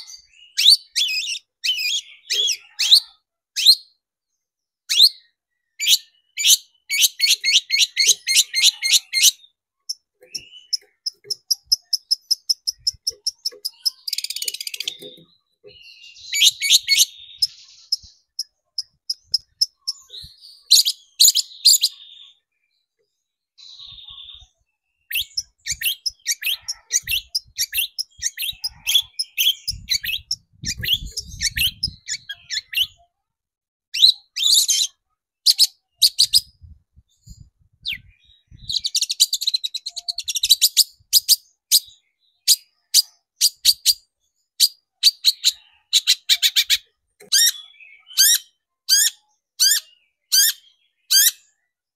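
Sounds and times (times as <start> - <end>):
bird singing sharp chattering notes: 4.9 - 22.4, 23.7 - 33.0, 44.6 - 51.5.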